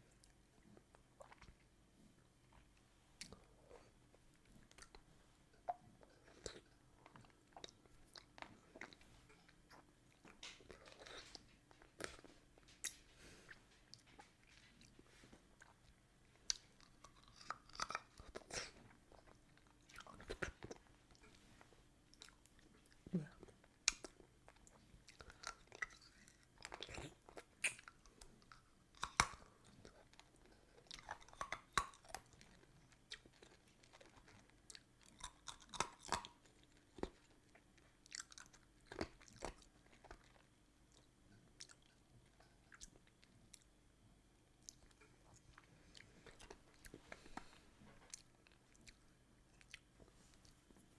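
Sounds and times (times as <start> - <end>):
wet mouth sounds: 1.1 - 1.6, 26.8 - 28.0
ice cubes being chewed: 23.9 - 43.7.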